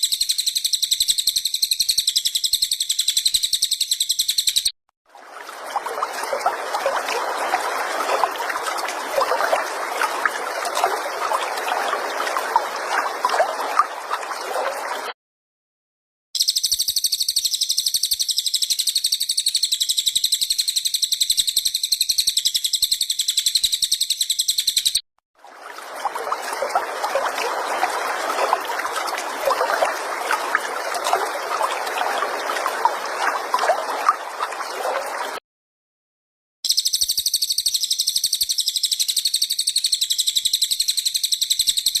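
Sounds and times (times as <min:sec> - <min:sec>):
high-pitched buzzing bird trill: 0:00.0 - 0:04.7, 0:36.7 - 0:42.0
quick bird chirps: 0:00.0 - 0:04.7.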